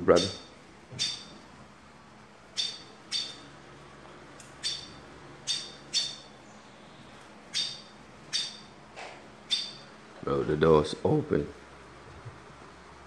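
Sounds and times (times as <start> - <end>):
small bird chirping: 0.1 - 1.4, 2.5 - 3.5, 4.5 - 8.8, 9.4 - 9.9.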